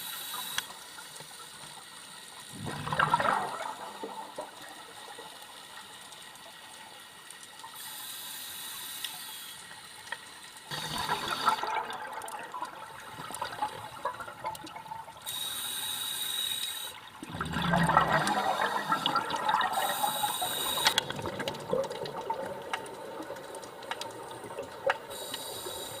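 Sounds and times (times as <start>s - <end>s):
bubbles gurgling underwater: 2.5s - 5.3s, 10.7s - 15.2s, 17.2s - 25.2s
regulator breath hissing: 7.8s - 9.7s, 15.3s - 17.0s, 19.7s - 21.0s, 25.1s - 26.0s.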